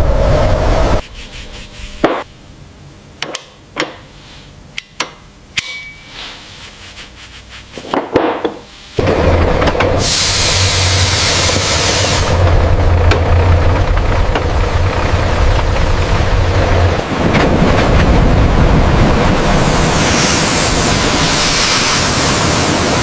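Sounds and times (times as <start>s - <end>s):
loud hiss with low hum: 0.0s - 7.9s, 8.6s - 23.0s
tools tapping on metal: 4.8s - 6.1s.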